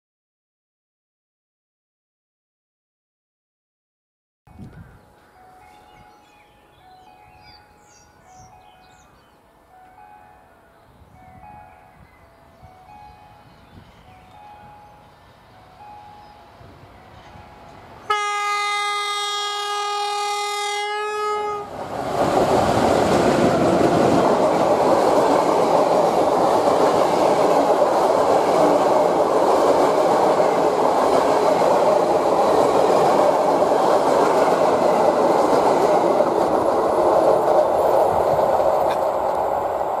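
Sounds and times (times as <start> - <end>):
train horn blast: 18.0 - 21.7
wheel-on-rail rolling noise: 21.7 - 40.0.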